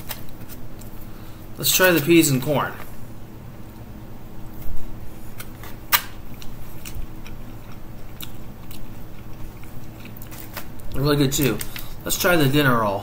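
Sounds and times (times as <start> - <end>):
person chewing: 5.2 - 11.0.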